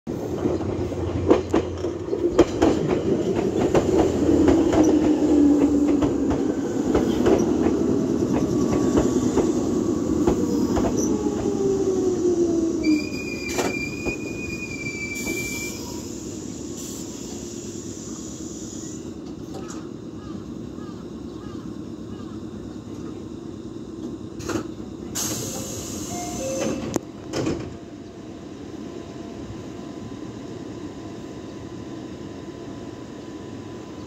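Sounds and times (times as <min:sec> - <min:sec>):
falling train whine: 0:00.1 - 0:34.0
standing train hum: 0:00.1 - 0:34.0
train wheels clicking over rail joints: 0:00.3 - 0:09.6
brake squeal: 0:12.8 - 0:16.2.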